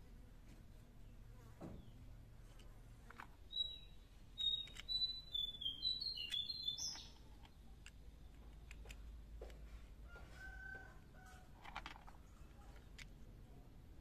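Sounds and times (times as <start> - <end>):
small bird chirping: 0.7 - 9.1.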